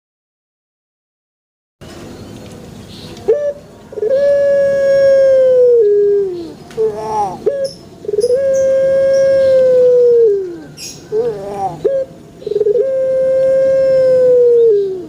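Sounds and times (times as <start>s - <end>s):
dove cooing: 3.3s - 15.0s.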